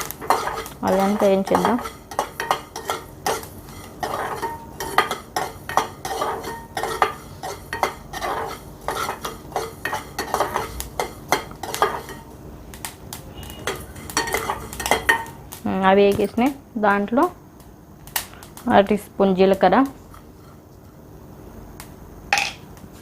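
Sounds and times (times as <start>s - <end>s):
metal spoon scraping spices in pan: 0.0s - 12.3s, 13.3s - 15.4s.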